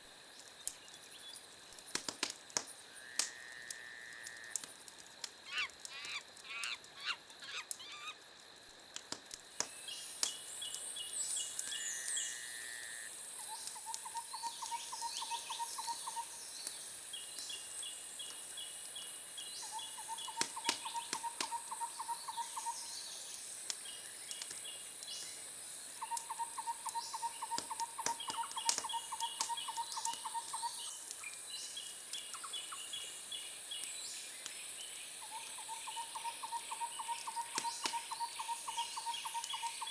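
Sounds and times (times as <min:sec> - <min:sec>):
wood fire crackling: 0:00.1 - 0:07.9, 0:08.5 - 0:11.8, 0:20.0 - 0:21.8, 0:23.2 - 0:32.4.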